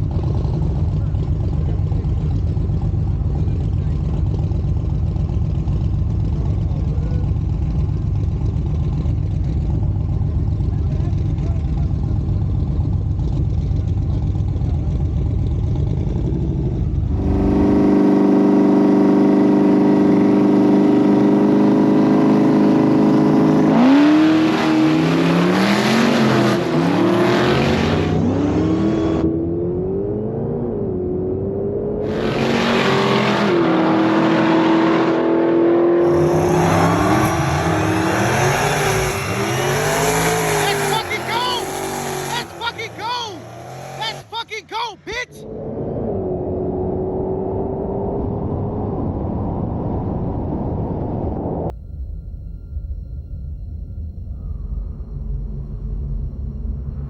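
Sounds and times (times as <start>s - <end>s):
drag car engine revving: 0.0s - 44.6s.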